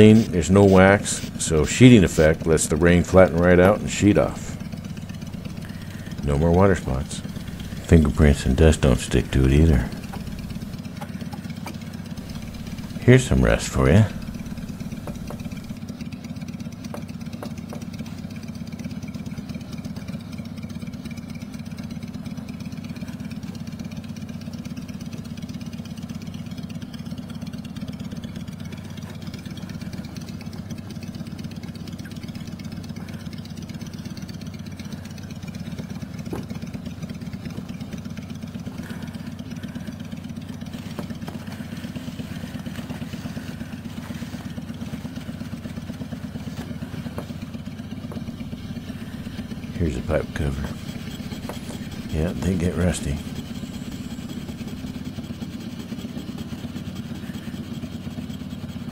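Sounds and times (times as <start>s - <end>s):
motor humming steadily: 0.0s - 58.9s.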